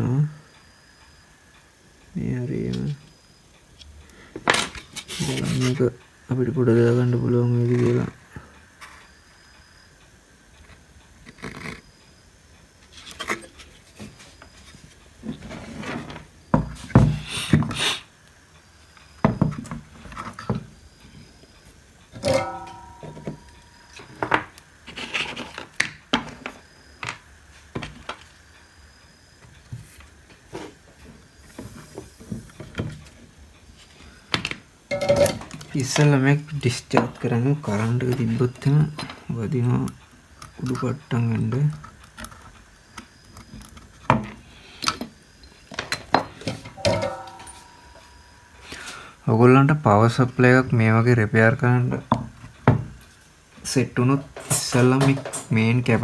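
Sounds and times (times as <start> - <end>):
tools handled on workbench: 22.2 - 26.4, 45.7 - 49.0, 54.3 - 55.7.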